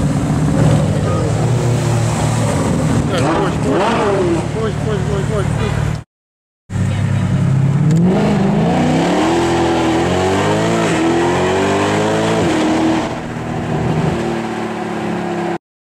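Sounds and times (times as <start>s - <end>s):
sports car engine accelerating: 6.8s - 15.6s.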